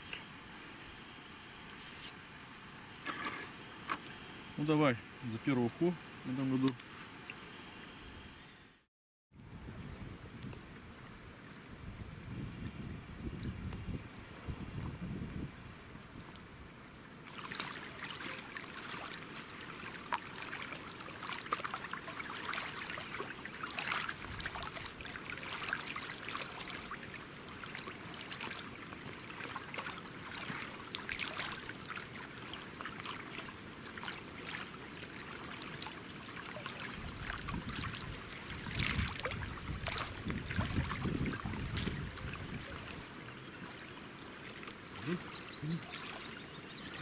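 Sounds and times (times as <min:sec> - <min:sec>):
water splashing and lapping: 0:16.2 - 0:47.0.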